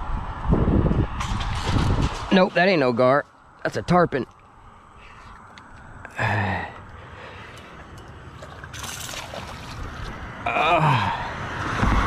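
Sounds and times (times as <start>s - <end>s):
fish splashing in water: 8.3s - 10.2s
person crying out: 10.5s - 11.2s.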